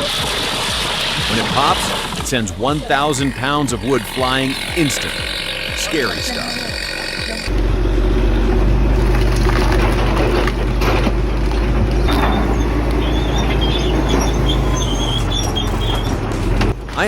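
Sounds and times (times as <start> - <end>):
bulldozer diesel engine droning: 0.0 - 17.0
high squeak: 12.0 - 16.6.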